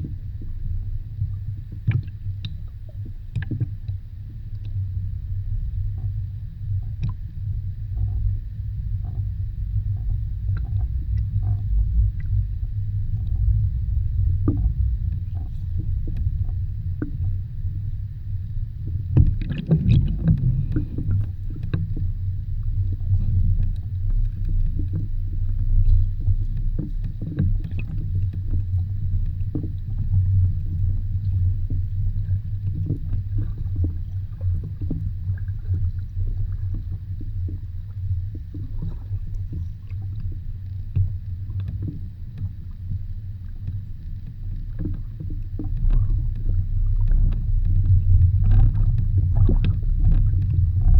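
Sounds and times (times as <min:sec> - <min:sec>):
faint underwater clicks and crackles: 0:00.0 - 0:50.9
muffled underwater rumble: 0:00.0 - 0:50.9.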